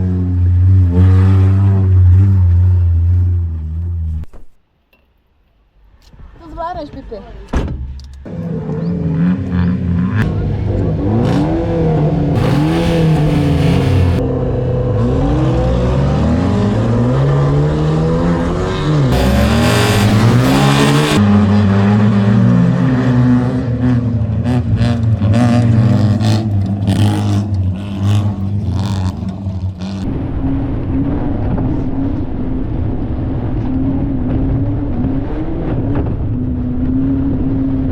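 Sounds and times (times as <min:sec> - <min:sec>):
rally car engine revving: 0:00.0 - 0:04.3, 0:08.2 - 0:37.9.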